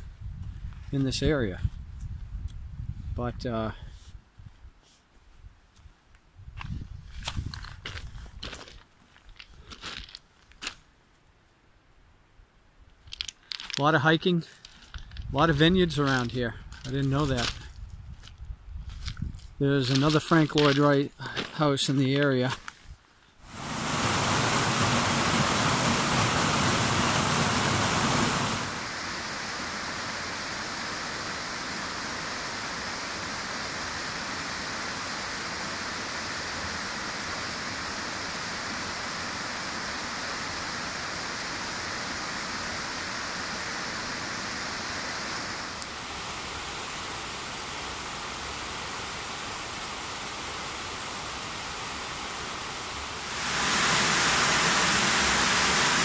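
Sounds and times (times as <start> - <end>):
rushing water: 23.4 - 56.0.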